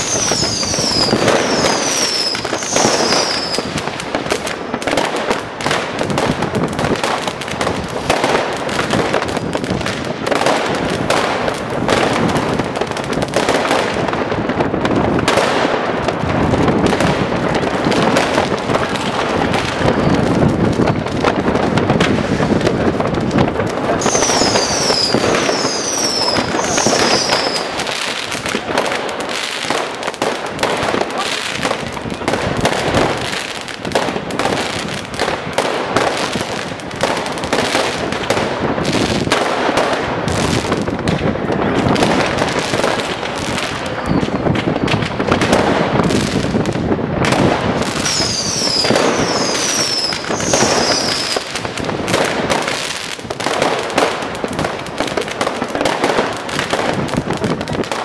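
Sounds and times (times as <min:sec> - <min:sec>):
firework whistles: 0:00.0 - 0:03.8, 0:24.0 - 0:28.4, 0:43.6 - 0:45.6, 0:47.8 - 0:51.7
firecracker bangs and crackling: 0:00.0 - 0:58.0.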